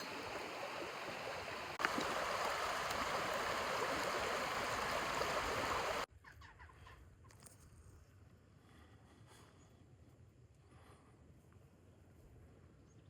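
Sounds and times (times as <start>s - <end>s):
rushing river water: 0.0s - 6.1s.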